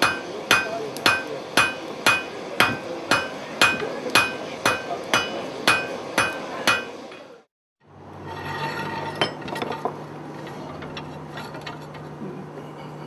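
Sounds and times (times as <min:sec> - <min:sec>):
hammer ringing on anvil: 0:00.0 - 0:07.0.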